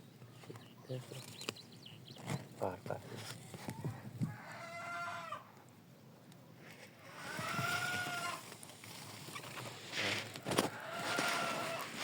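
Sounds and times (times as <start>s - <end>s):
chicken calling: 3.6s - 5.6s, 7.0s - 8.5s, 10.4s - 12.0s.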